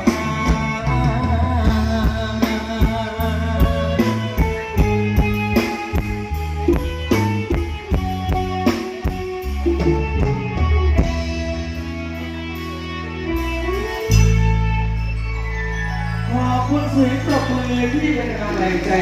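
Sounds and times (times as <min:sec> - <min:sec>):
live band playing instrumental: 0:00.0 - 0:19.0.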